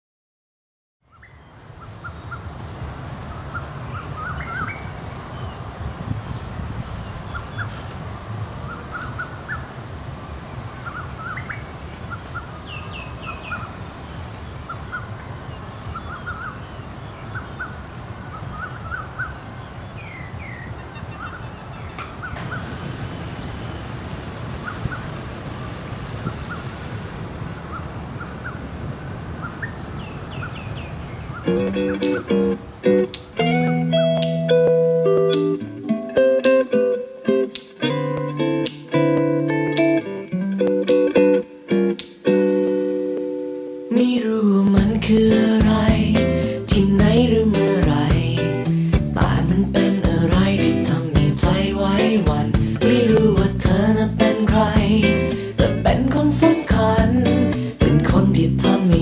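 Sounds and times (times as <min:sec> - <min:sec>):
birds chirping: 0:01.0 - 0:35.4.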